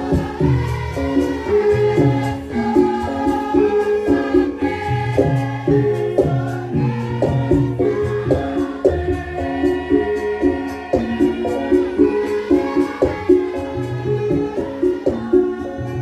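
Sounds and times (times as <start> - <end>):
steady drum beat: 0.0 - 16.0
tuned percussion melody: 0.0 - 16.0
voices singing: 0.0 - 16.0.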